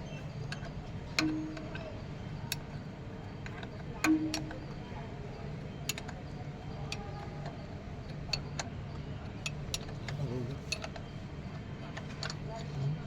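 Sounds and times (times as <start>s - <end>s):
tools clicking and tapping: 1.2s - 1.8s, 4.1s - 4.6s.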